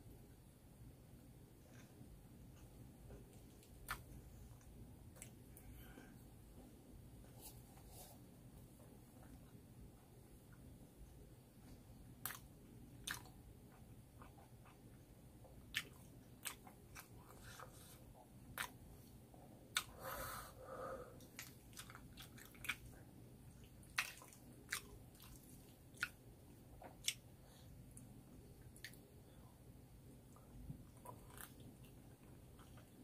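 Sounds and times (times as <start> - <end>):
person chewing food: 2.6 - 6.2, 12.2 - 20.0, 21.2 - 29.4, 30.3 - 33.0.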